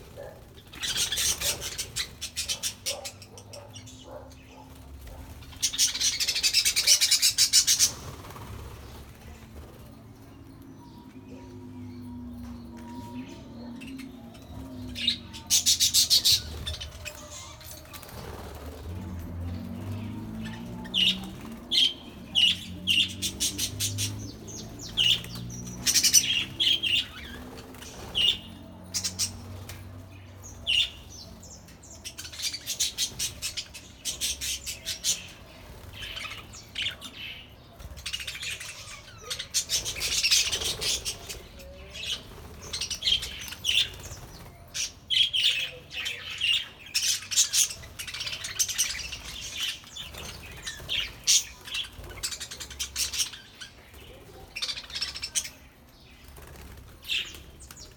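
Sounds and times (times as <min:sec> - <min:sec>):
wings fluttering: 0:00.0 - 0:02.9, 0:04.6 - 0:10.0, 0:16.0 - 0:22.0, 0:56.2 - 0:57.9.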